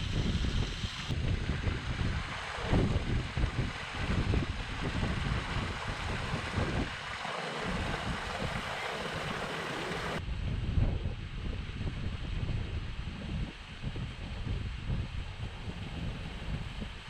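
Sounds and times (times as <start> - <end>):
wind buffeting microphone: 0.0 - 17.0
floodwater rushing: 1.2 - 10.2.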